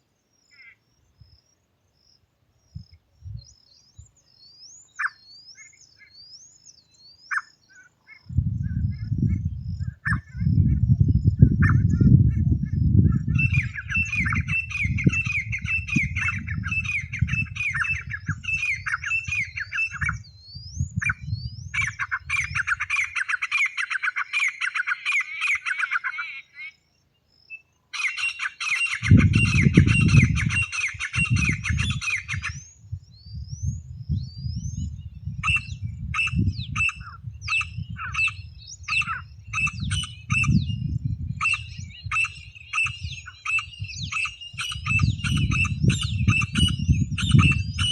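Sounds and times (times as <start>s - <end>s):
francolin calling: 0.0s - 47.9s.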